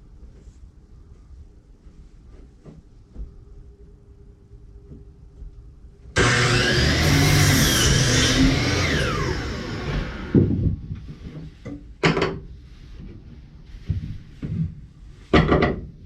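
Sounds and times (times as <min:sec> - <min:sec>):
electric saw cutting wood: 0:06.2 - 0:10.7.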